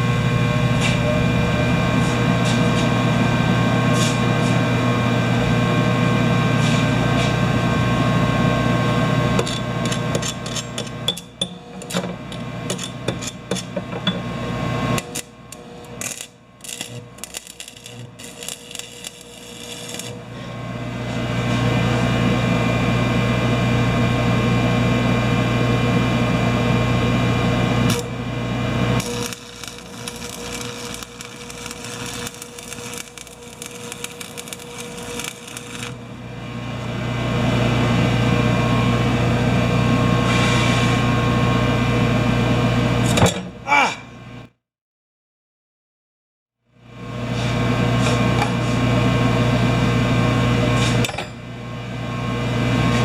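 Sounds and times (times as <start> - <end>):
welding arc buzzing crackle: 0.0 - 5.7, 6.6 - 22.1, 27.3 - 37.0.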